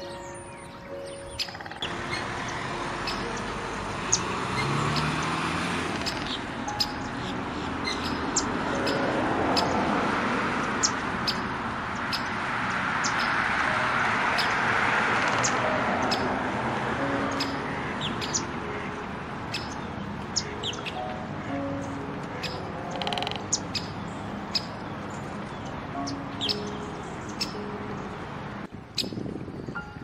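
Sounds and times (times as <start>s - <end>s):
small birds chirping: 0.0s - 9.8s, 10.8s - 12.4s, 13.0s - 13.4s, 17.3s - 18.9s, 19.5s - 28.1s.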